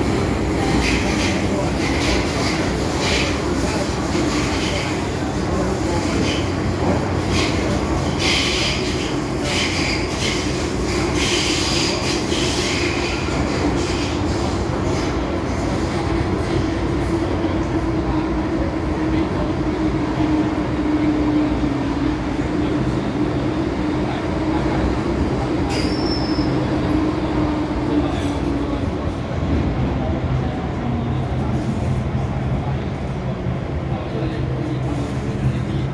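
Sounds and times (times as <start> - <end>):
train hum: 0.0 - 35.9
train wheels rumbling on rail: 0.0 - 35.9
high wheel squeal: 25.7 - 26.6.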